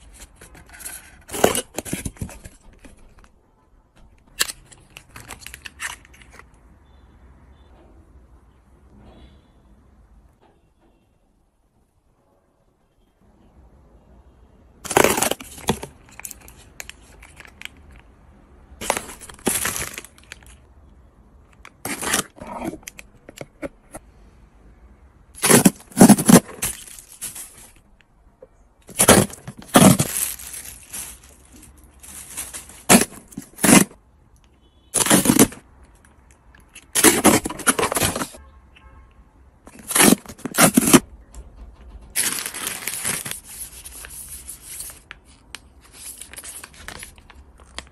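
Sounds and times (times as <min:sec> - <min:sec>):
plastic packaging crinkling: 0:14.9 - 0:18.0, 0:18.8 - 0:20.6, 0:21.7 - 0:23.8, 0:25.4 - 0:27.8, 0:28.8 - 0:34.0, 0:35.0 - 0:35.6, 0:36.7 - 0:38.4, 0:39.7 - 0:41.0, 0:42.1 - 0:47.9.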